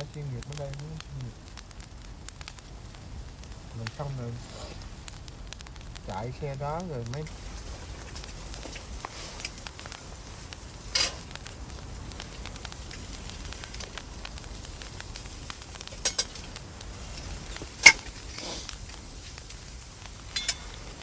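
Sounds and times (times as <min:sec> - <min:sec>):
faint hiss: 0:00.0 - 0:21.0
sharp clicks and knocks: 0:06.8 - 0:21.0.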